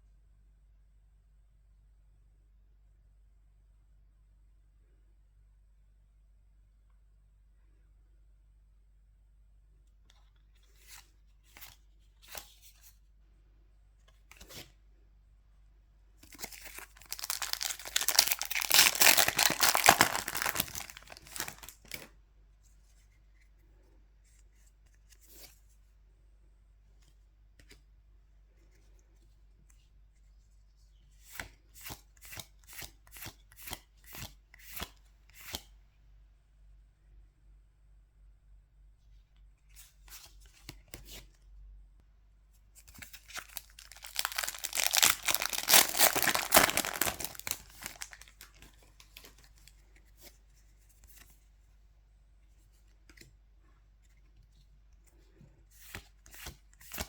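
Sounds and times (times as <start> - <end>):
crisp snaps: 16.2 - 22.1, 42.9 - 49.4
foil pack ripping and crinkling: 16.4 - 22.0, 43.3 - 48.7.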